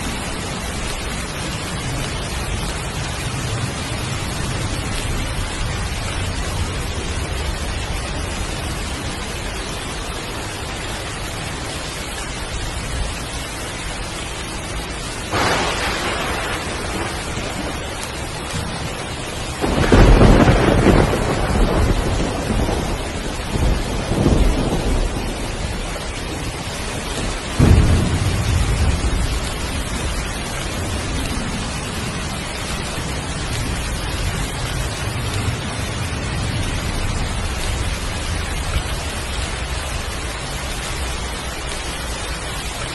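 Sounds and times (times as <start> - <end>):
heavy rain: 0.0 - 42.9
thunder crack: 15.3 - 26.6, 27.2 - 32.3
rolling thunder peals: 15.3 - 40.0.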